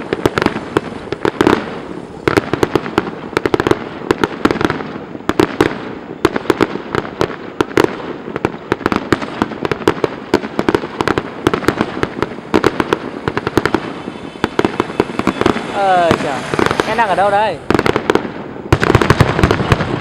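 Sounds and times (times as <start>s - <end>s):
fireworks cracking and banging: 0.0s - 20.0s
echoing rumble: 10.8s - 18.7s.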